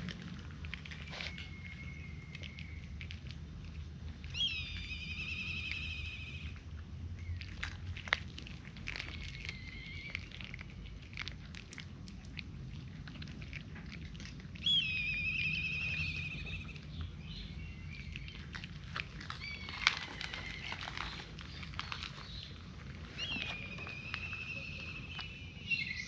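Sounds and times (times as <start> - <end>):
cats crunching dry kibble: 0.0 - 26.0
high wavering cat call: 4.3 - 6.6, 9.2 - 10.5, 14.6 - 17.0, 23.1 - 26.0.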